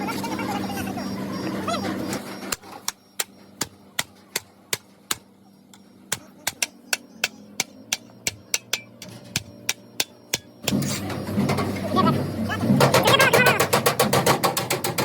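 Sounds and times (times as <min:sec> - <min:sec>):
sharp hammer strikes: 0:02.5 - 0:05.3, 0:06.1 - 0:11.0.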